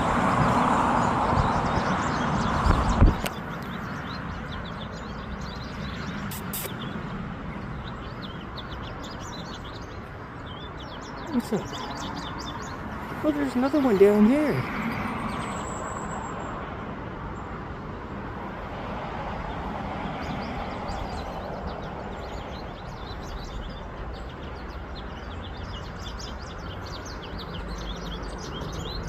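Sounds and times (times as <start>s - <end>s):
outdoor background rumble: 0.0s - 17.2s
small birds chirping: 0.9s - 16.6s, 19.4s - 29.0s.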